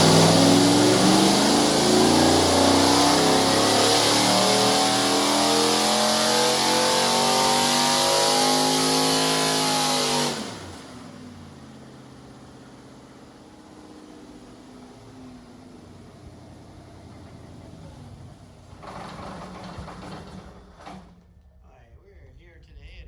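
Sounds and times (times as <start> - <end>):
engine revving on a dyno: 0.0 - 15.5, 18.1 - 20.8.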